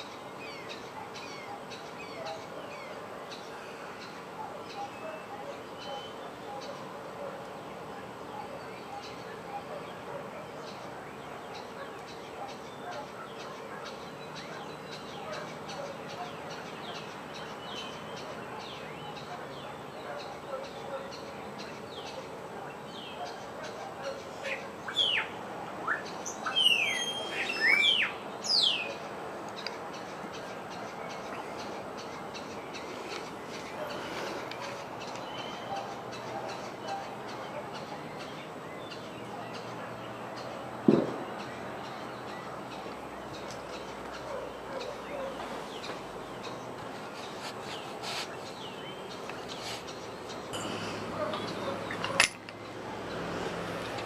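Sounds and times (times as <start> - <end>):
steady background noise: 0.0 - 54.0
wild birds calling: 0.0 - 54.0.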